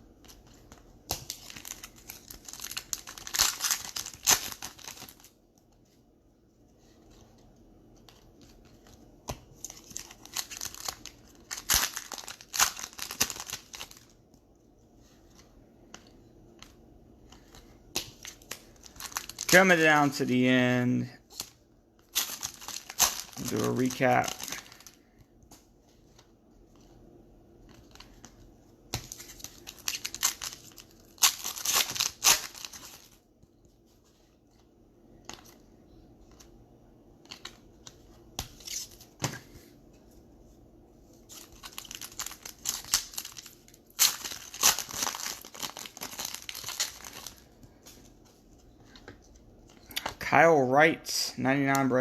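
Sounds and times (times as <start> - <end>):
plastic wrappers tearing and crinkling: 1.1 - 5.3, 9.6 - 14.2, 18.1 - 20.5, 22.1 - 25.0, 29.0 - 33.2, 41.3 - 47.5
cards being handled: 21.3 - 27.0, 27.6 - 36.6.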